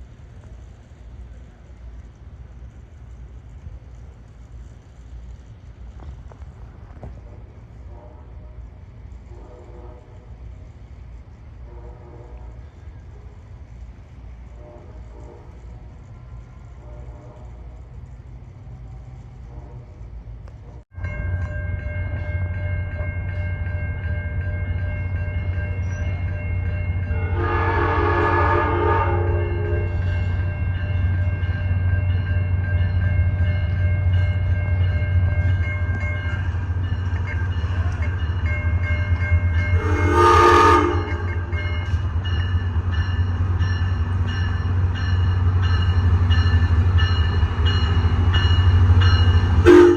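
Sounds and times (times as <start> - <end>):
diesel locomotive passing: 0.0 - 49.9
train horn blasts: 7.3 - 10.4, 11.6 - 12.9, 14.5 - 15.7, 16.8 - 17.8, 27.1 - 30.2, 39.7 - 41.8, 49.6 - 49.9.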